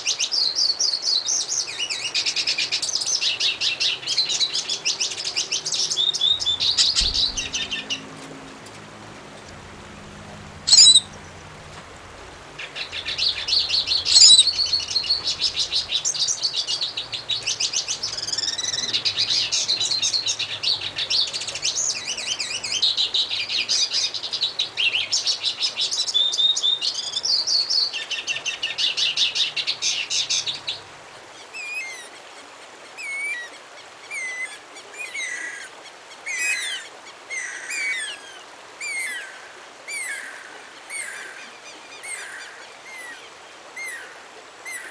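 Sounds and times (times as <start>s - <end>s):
songbird twittering: 0.0s - 30.8s
bird whistled phrases: 10.6s - 11.2s, 13.1s - 15.8s.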